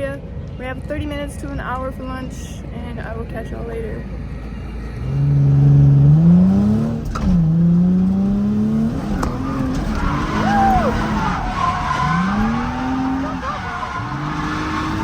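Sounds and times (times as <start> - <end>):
car engine revving hard: 4.7 - 15.0
tyre squeal: 8.9 - 15.0.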